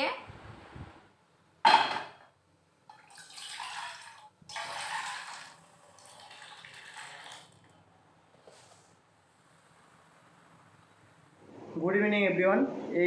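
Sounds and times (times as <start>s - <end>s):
water running from tap: 3.0s - 7.6s.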